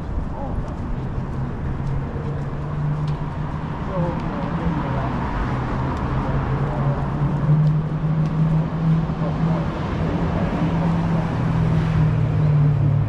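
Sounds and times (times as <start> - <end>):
city street traffic: 0.0 - 13.0
vehicle engine droning: 0.0 - 13.0.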